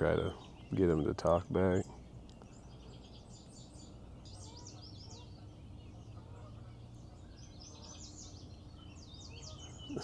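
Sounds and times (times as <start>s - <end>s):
faint steady low hum: 0.0s - 10.0s
small birds singing and chirping: 0.0s - 10.0s.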